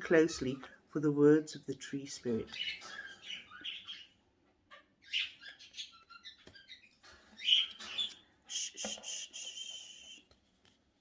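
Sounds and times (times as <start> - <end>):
birds chirping and squawking: 2.1 - 10.2
long whistled bird call: 8.5 - 10.2.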